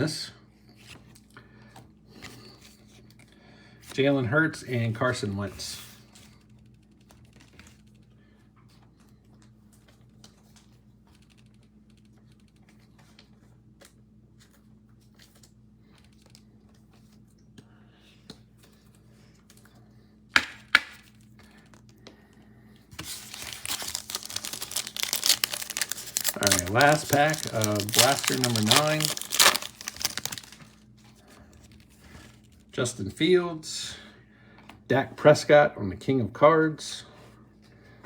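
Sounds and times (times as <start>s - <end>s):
wrapper crinkling and tearing: 23.0s - 30.8s.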